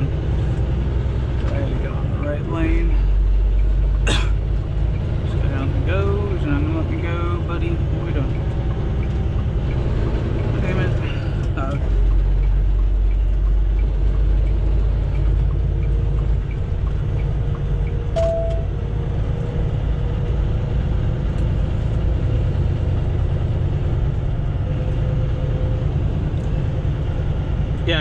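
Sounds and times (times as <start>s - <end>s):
diesel truck engine rumble: 0.0s - 28.0s
short beep: 18.2s - 18.7s.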